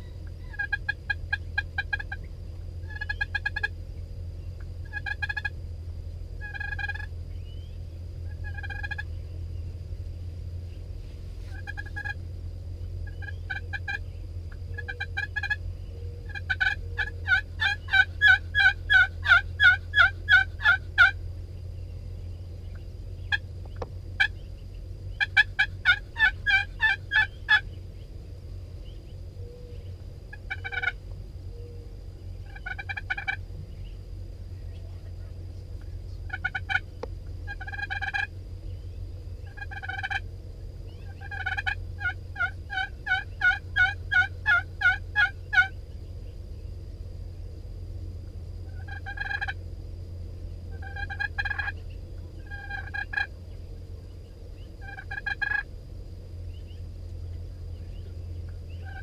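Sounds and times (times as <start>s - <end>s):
turkeys gobbling: 0.0s - 3.8s, 4.6s - 5.6s, 6.4s - 9.2s, 11.4s - 12.2s, 13.0s - 15.6s, 16.2s - 21.2s, 22.6s - 27.7s, 29.6s - 31.0s, 32.4s - 33.4s, 36.2s - 38.3s, 39.4s - 40.2s, 40.9s - 45.8s, 48.7s - 49.6s, 50.7s - 53.3s, 54.8s - 55.7s, 57.9s - 59.0s
steady low rumble: 0.0s - 59.0s.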